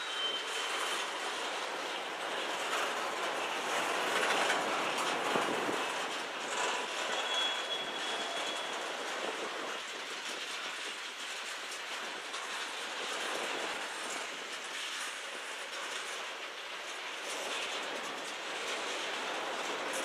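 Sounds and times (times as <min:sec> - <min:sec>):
high-pitched wheel squeal: 0:00.0 - 0:01.1, 0:07.0 - 0:08.9
train wheels clattering on rails: 0:00.0 - 0:20.0.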